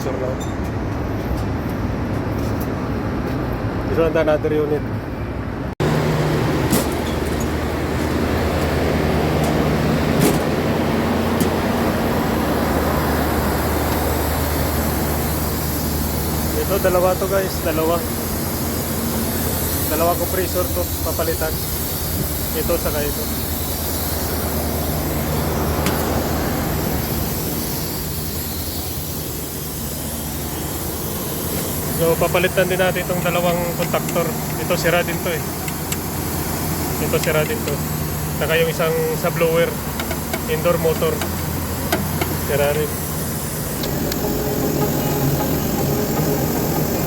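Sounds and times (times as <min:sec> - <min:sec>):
air conditioner fan drone: 0:00.0 - 0:47.0
low hum: 0:41.3 - 0:47.0.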